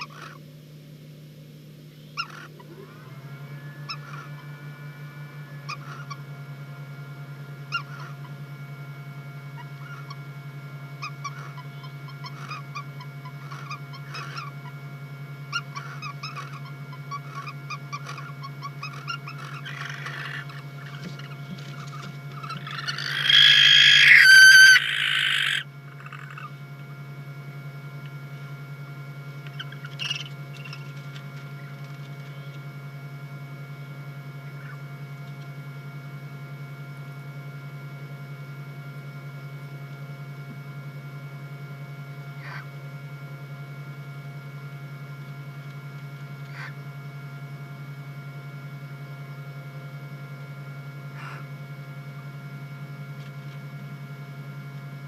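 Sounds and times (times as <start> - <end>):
barn owl screeching: 0.0 - 0.4, 2.2 - 4.5, 5.3 - 6.3, 11.0 - 14.6, 15.5 - 26.6, 29.4 - 30.9
low electrical hum: 0.0 - 55.0.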